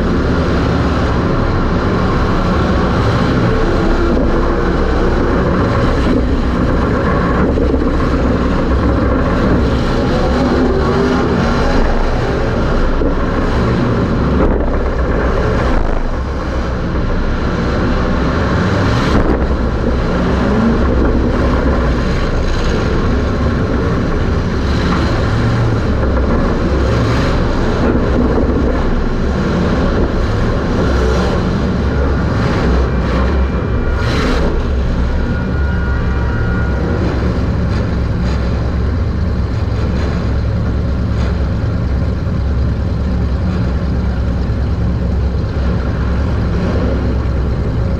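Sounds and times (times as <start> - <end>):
race car engine running hard: 0.0 - 47.9
road and chassis noise: 0.0 - 47.9.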